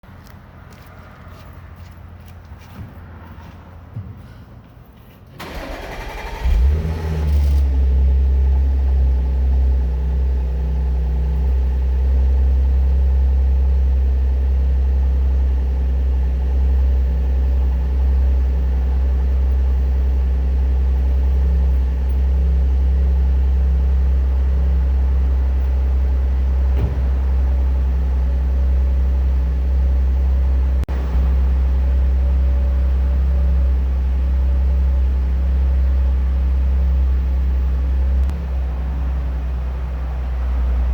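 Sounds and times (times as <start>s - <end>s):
starter motor cranking: 5.4s - 6.8s
car engine revving and idling: 5.4s - 40.9s.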